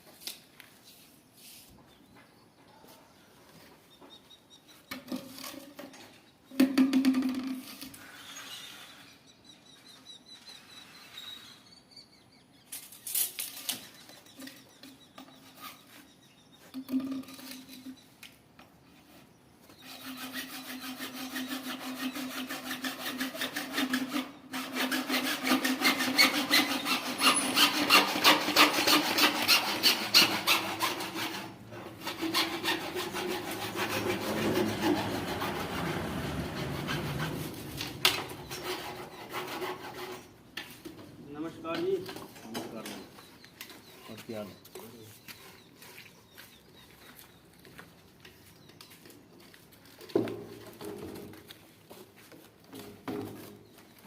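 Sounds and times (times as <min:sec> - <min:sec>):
saw cutting rhythmically: 0:19.8 - 0:37.6.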